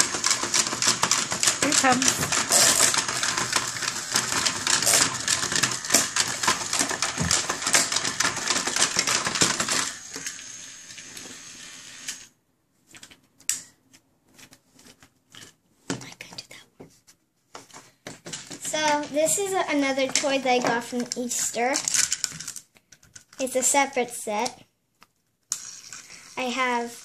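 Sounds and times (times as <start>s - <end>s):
toy motor clicking rattle: 0.0s - 12.3s, 18.7s - 22.6s, 25.5s - 27.0s.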